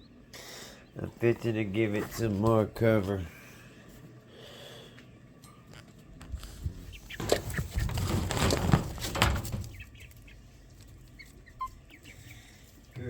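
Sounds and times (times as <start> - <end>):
quail chicks peeping: 0.0 - 2.7, 6.2 - 13.0
rustling and handling noise: 5.0 - 13.0.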